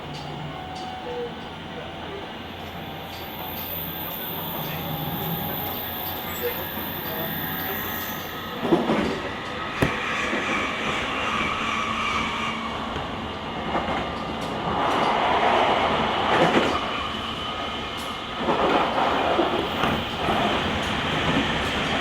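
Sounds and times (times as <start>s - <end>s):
train wheel and rail noise: 0.0s - 22.0s.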